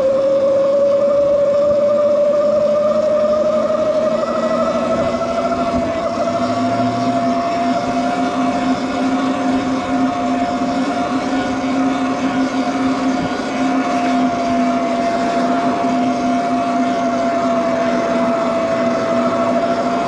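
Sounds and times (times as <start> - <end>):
electric bike motor whining: 0.0 - 20.0
wind: 0.0 - 20.0.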